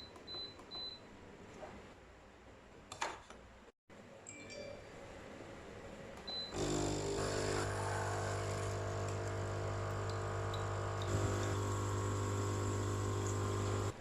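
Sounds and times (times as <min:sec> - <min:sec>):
coffee machine pump humming: 0:06.6 - 0:14.0.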